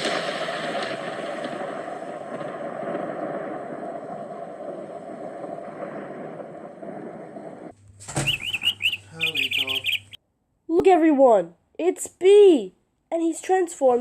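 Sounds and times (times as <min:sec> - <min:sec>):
rain and wind storm noise: 0:00.0 - 0:07.8
cartoon bird chirping: 0:08.2 - 0:10.2.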